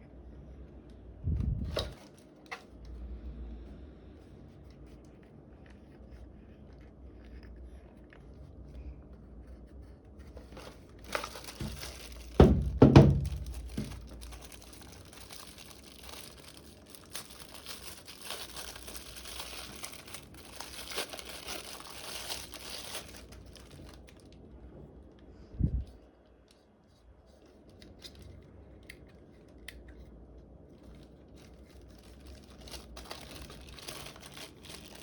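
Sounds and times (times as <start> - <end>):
packaging crinkling and rustling: 1.3 - 3.0, 10.1 - 24.4, 27.2 - 35.0
loud knocks: 12.4 - 13.9.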